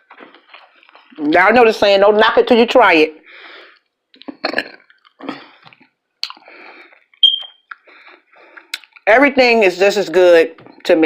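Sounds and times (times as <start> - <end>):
person chewing food: 0.0 - 1.4, 3.6 - 9.1
brief high squeak: 7.2 - 7.6.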